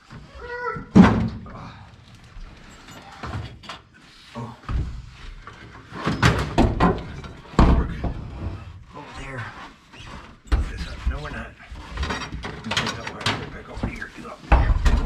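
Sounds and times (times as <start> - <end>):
knocks and clunks of car parts: 0.9 - 1.6, 6.0 - 8.6, 10.5 - 15.0.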